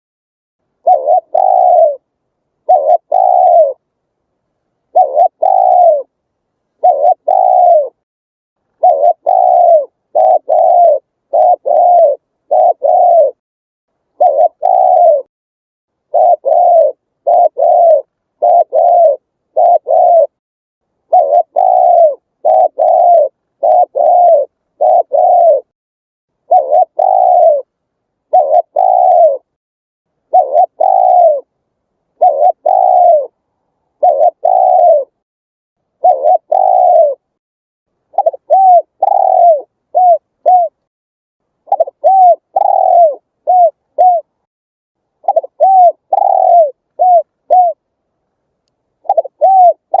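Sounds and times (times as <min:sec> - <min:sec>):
dove cooing: 0:00.8 - 0:03.9, 0:04.9 - 0:06.1, 0:06.8 - 0:08.0, 0:08.8 - 0:13.4, 0:14.1 - 0:15.3, 0:16.0 - 0:20.4, 0:21.1 - 0:25.7, 0:26.4 - 0:27.7, 0:28.3 - 0:29.5, 0:30.3 - 0:31.5, 0:32.2 - 0:35.2, 0:36.0 - 0:37.3, 0:38.1 - 0:40.8, 0:41.7 - 0:44.4, 0:45.2 - 0:47.8, 0:49.0 - 0:50.0.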